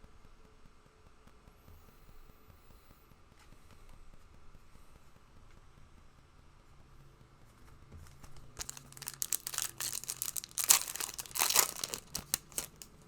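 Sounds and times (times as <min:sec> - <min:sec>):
foil wrapper tearing and crinkling: 0:08.6 - 0:13.0.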